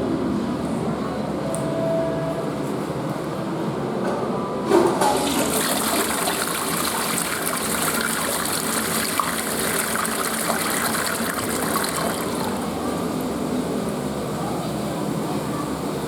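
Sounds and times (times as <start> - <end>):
toilet flush knock: 4.7 - 12.7
water rushing into toilet bowl: 4.8 - 13.3.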